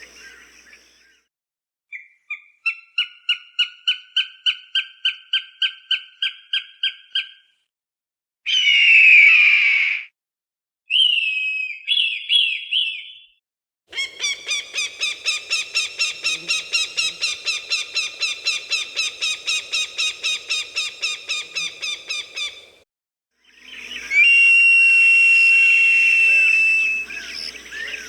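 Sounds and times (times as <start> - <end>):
falcon rapid kek calls: 13.9 - 22.7.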